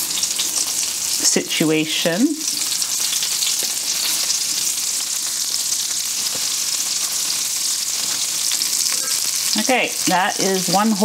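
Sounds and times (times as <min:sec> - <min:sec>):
fish frying in grease: 0:00.0 - 0:11.0.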